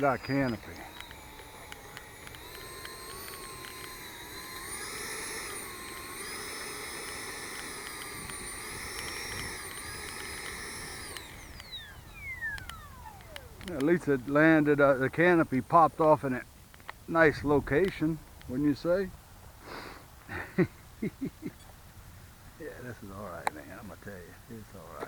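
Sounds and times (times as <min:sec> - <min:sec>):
ducted fan jet whining: 0:00.0 - 0:19.1.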